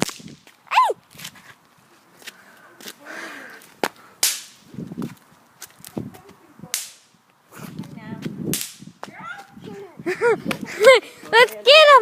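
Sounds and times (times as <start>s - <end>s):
firecrackers cracking: 0.0s - 0.6s, 3.6s - 6.0s, 6.6s - 7.2s, 8.4s - 9.0s.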